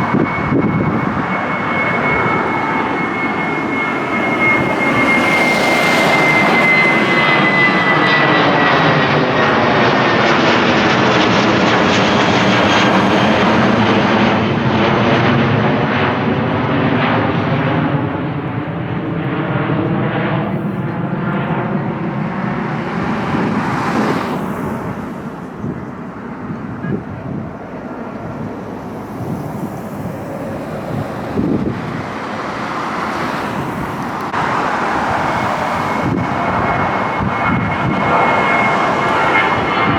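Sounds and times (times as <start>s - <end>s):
jet airliner passing overhead: 0.0s - 39.9s.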